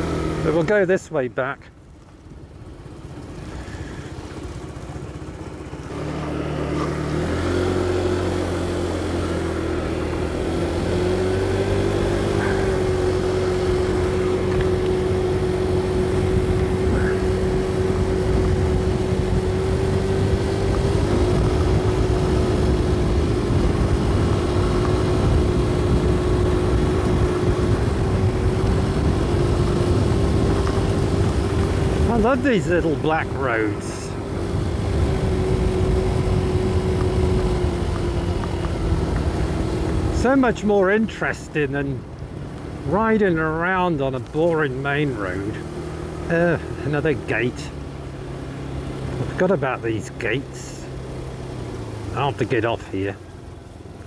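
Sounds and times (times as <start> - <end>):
motorcycle engine: 0.0 - 54.0
wind noise: 12.7 - 40.2.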